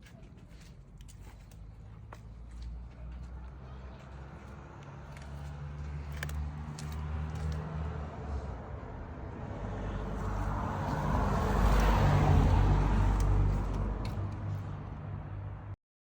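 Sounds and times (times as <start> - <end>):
vehicle passing by: 2.4 - 15.8.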